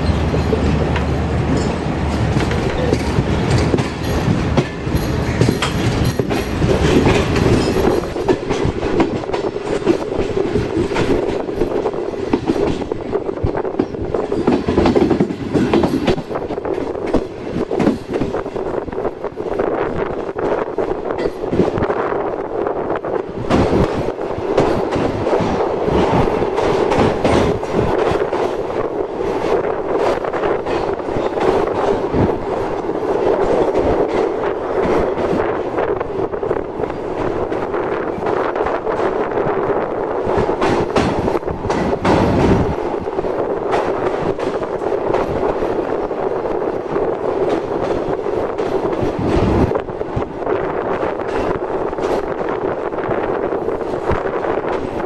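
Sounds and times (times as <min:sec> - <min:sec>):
train rumbling on rails: 0:00.0 - 0:55.0.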